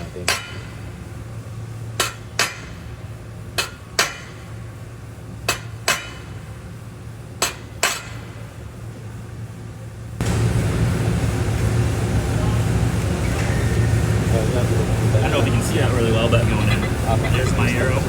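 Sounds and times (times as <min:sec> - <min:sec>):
steady low hum: 0:00.0 - 0:18.0
hammer striking metal plate: 0:00.3 - 0:00.7, 0:02.0 - 0:02.8, 0:03.6 - 0:04.4, 0:05.5 - 0:06.4, 0:07.4 - 0:08.2.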